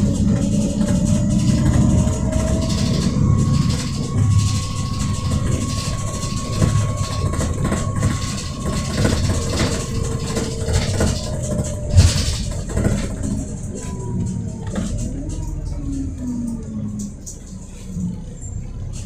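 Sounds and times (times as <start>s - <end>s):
faint steady whine: 0.0s - 16.6s
bus engine rumble: 0.0s - 19.0s.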